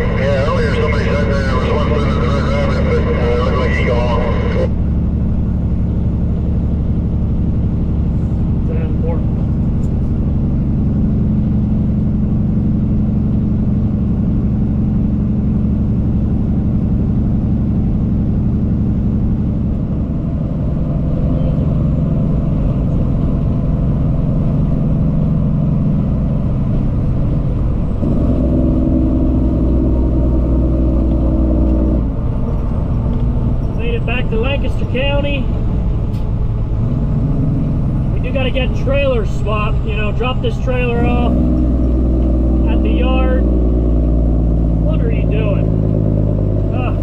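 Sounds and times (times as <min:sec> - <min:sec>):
truck diesel engine running: 0:00.0 - 0:47.0.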